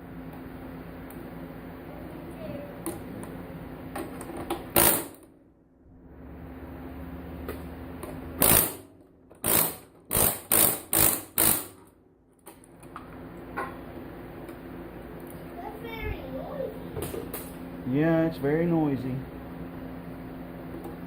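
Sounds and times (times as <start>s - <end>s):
pneumatic air hammer bursts: 4.7s - 5.2s, 8.4s - 11.9s.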